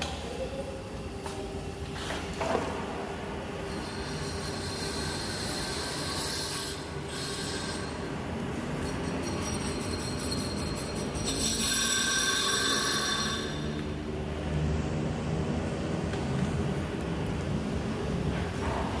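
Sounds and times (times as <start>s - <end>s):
metal lathe cutting steel: 3.6s - 13.9s.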